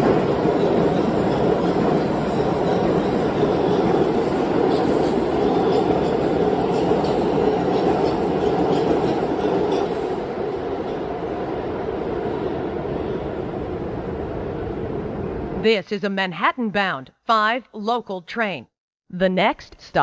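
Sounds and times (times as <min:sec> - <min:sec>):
subway train rumbling: 0:00.0 - 0:15.7.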